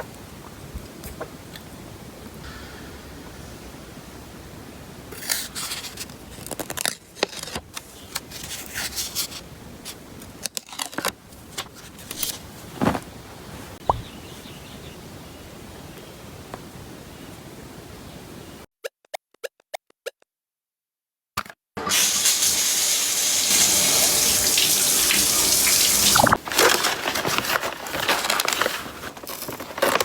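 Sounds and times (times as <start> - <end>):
crinkling and scraping objects: 5.2 - 13.8, 26.2 - 30.0.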